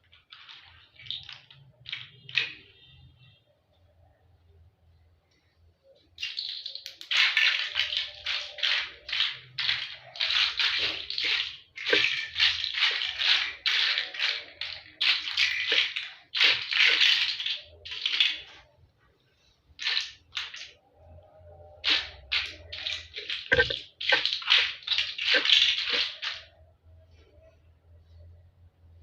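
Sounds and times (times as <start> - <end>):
rattling scraping noises: 21.8 - 26.6.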